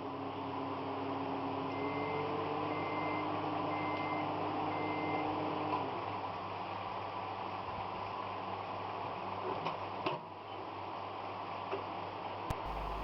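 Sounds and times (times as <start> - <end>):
microwave oven humming: 0.4 - 5.9, 12.5 - 13.0
microwave beeps: 1.7 - 5.3, 12.5 - 13.0.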